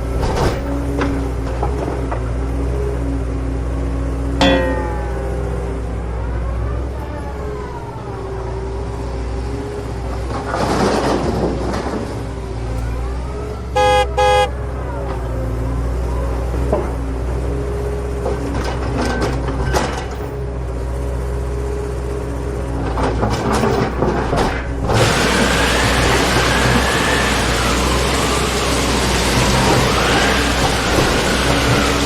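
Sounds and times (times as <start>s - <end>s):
vehicle engine revving: 13.6s - 14.6s
short horn toots: 13.8s - 14.5s.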